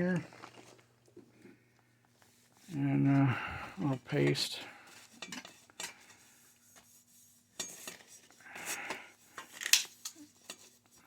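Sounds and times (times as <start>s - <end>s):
metal parts clinking: 9.4s - 10.7s.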